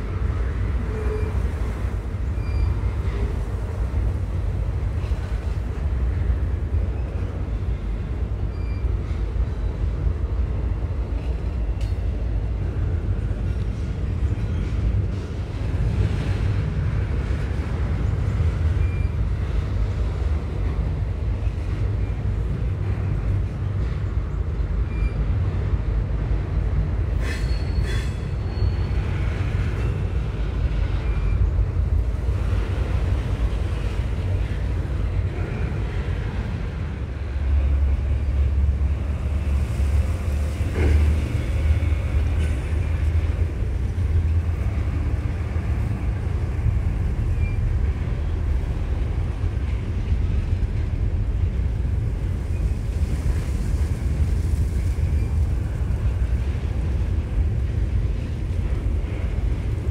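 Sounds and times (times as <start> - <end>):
freight train rumbling past: 0.0 - 59.9
wheel squeal: 27.3 - 29.0.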